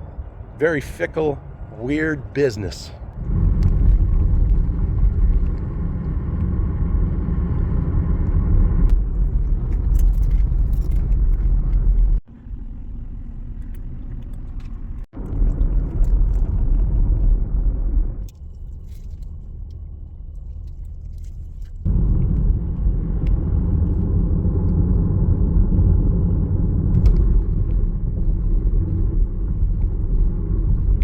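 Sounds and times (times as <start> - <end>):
wind buffeting microphone: 3.0 - 12.2, 21.8 - 31.0.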